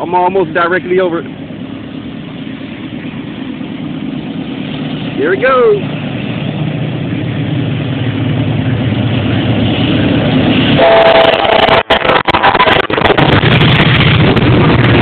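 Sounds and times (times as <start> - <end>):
diesel locomotive engine rumble: 0.0 - 15.0
exhaust blast buffeting microphone: 0.0 - 15.0
train horn chord: 10.8 - 12.8.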